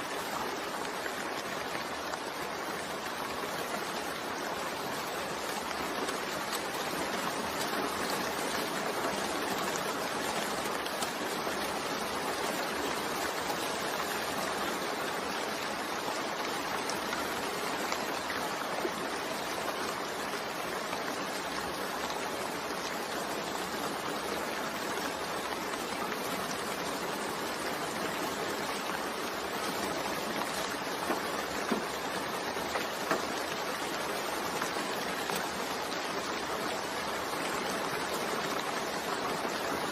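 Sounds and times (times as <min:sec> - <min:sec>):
steady rain: 0:00.0 - 0:39.9
raindrop ticks: 0:29.4 - 0:34.0.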